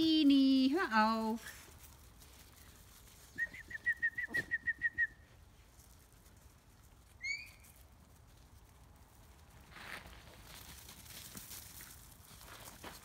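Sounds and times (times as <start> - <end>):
rising bird whistle: 3.3 - 5.2, 7.2 - 7.6
bird whistling: 3.4 - 5.2, 7.2 - 7.6.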